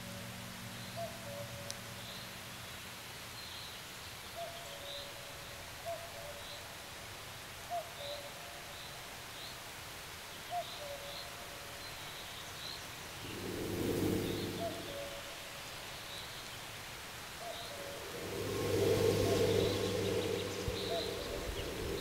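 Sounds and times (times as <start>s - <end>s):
steady outdoor hiss: 0.0s - 22.0s
low hum: 13.0s - 15.4s, 17.5s - 22.0s.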